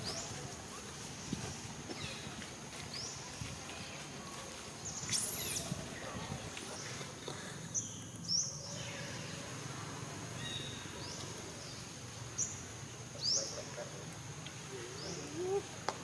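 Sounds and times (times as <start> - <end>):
high sweeping animal chirps: 5.0 - 5.8.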